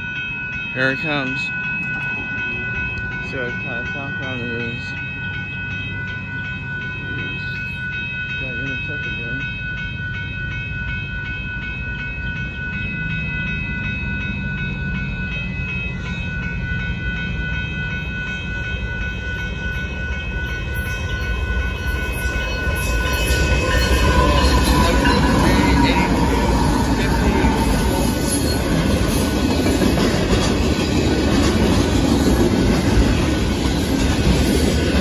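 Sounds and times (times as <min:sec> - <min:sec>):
crossing warning bell ringing: 0:00.0 - 0:35.0
locomotive engine rumble: 0:12.0 - 0:35.0.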